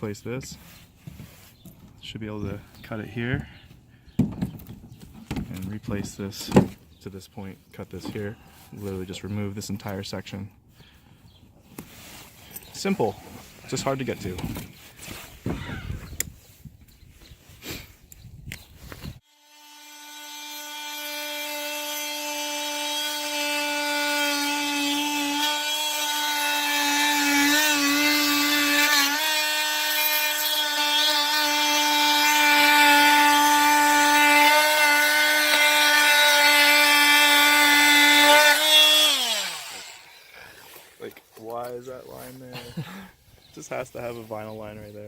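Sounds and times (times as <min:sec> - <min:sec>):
power tool motor cutting: 0:19.2 - 0:40.8.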